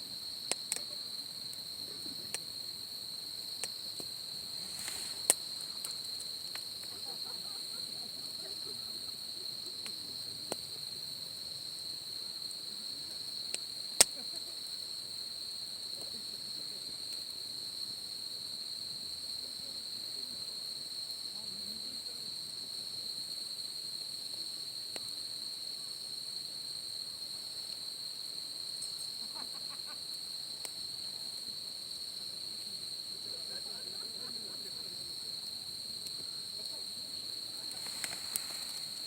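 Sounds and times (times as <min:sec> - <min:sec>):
high-pitched insect trill: 0:00.0 - 0:39.0
wood fire crackling and popping: 0:00.4 - 0:02.5, 0:03.3 - 0:07.1, 0:36.0 - 0:39.0.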